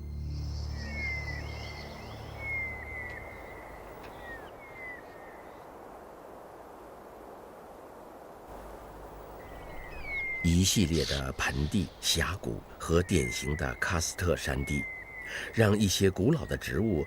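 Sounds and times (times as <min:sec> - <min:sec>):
low music: 0:00.0 - 0:02.9
steady background hiss: 0:00.0 - 0:17.0
bird whistled calls: 0:00.4 - 0:05.4, 0:09.5 - 0:11.3, 0:12.9 - 0:17.0.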